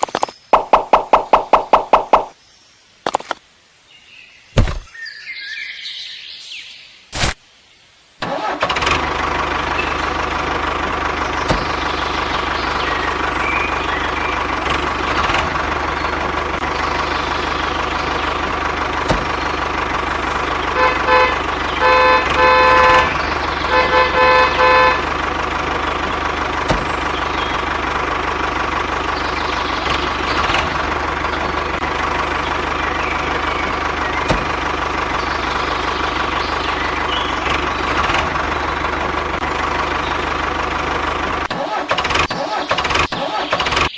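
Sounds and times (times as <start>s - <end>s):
truck engine running: 0.0s - 2.3s, 8.2s - 43.9s
short horn blasts: 20.7s - 25.2s.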